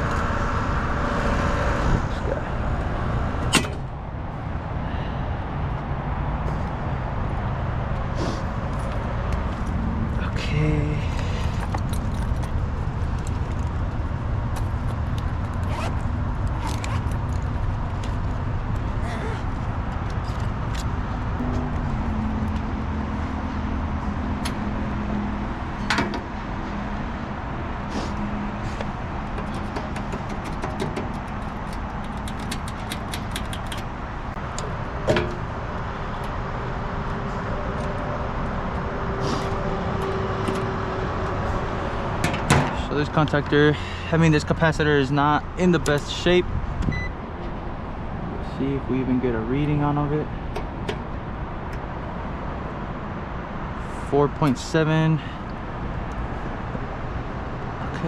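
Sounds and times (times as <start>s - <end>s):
steady low rumble: 0.0s - 29.4s.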